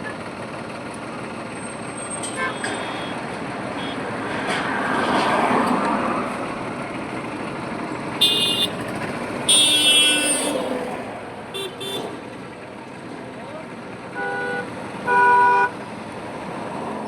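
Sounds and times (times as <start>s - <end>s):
highway traffic passing: 0.0s - 17.0s
car horn: 8.2s - 10.8s, 11.5s - 12.2s, 14.1s - 15.8s.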